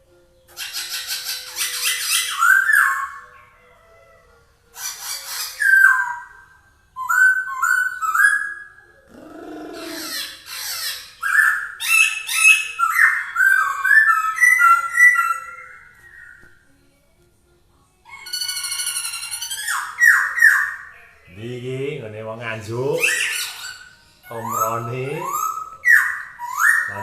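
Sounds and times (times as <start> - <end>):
bird singing whistled phrases: 0.6 - 3.3, 4.8 - 16.4, 18.1 - 21.0, 22.9 - 27.0
low rough bird call: 9.0 - 10.6.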